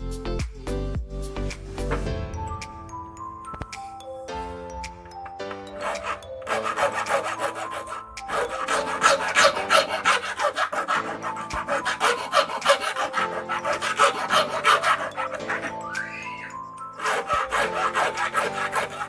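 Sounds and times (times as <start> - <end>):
saw file rasping: 5.6 - 19.0.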